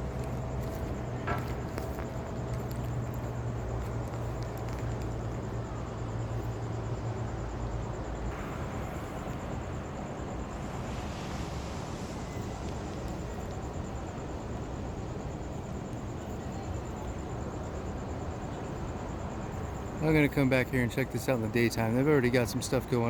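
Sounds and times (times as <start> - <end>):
steady low hum: 0.0 - 23.0
traffic noise: 0.0 - 23.0.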